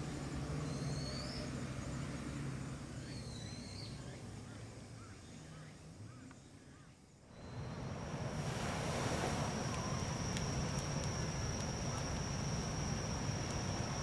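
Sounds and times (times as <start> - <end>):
insect high-pitched call: 0.6 - 1.5, 2.9 - 7.6
sea surf: 7.8 - 14.0.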